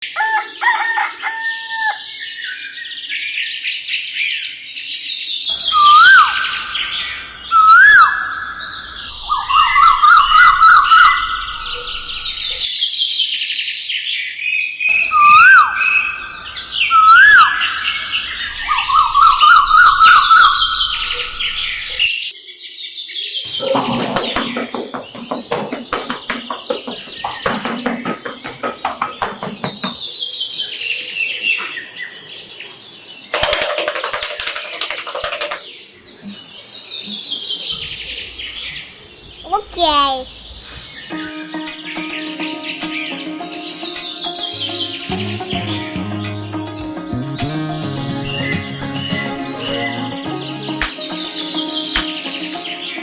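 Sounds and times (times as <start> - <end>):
songbirds chirping and singing: 40.5 - 53.0.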